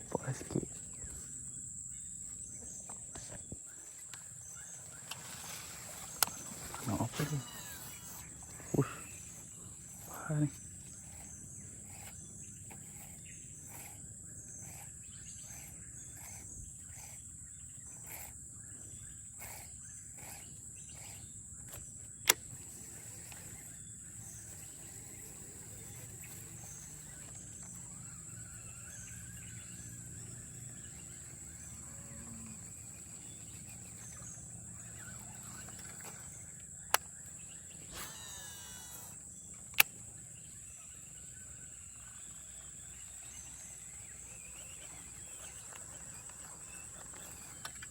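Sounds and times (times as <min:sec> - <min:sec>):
high-pitched insect drone: 0:00.0 - 0:47.9
sharp clicks: 0:21.1 - 0:23.5, 0:36.6 - 0:37.3, 0:38.9 - 0:40.1.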